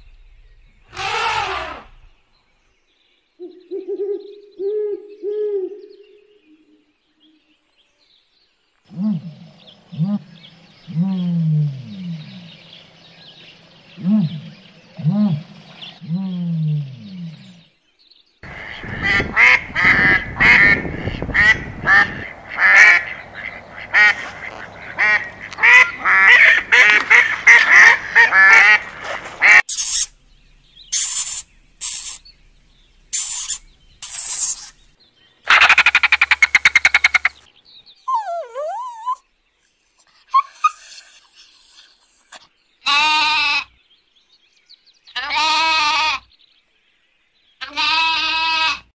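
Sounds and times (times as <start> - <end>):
buzzing animal call: 0.9 - 2.0
high-pitched animal bursts: 0.9 - 2.0, 29.7 - 30.2, 30.9 - 32.3, 33.1 - 34.8
short repeated animal calls: 0.9 - 2.1, 29.4 - 30.2, 30.9 - 32.3, 33.1 - 34.9, 35.5 - 37.5
lamb bleating: 42.9 - 43.6, 45.2 - 46.2, 47.6 - 48.9.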